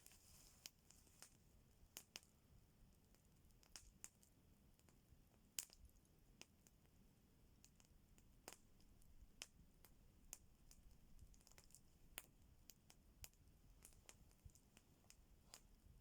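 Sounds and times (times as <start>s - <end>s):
wood fire crackling: 2.9s - 4.2s, 5.6s - 7.0s, 7.6s - 16.0s.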